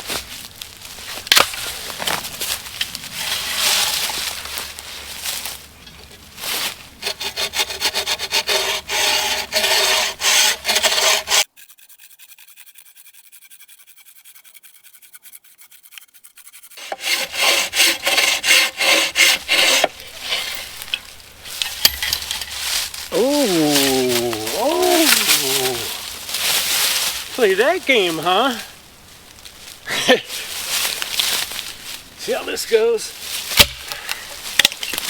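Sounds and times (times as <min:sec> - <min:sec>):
hand saw cutting wood: 0:06.0 - 0:25.9.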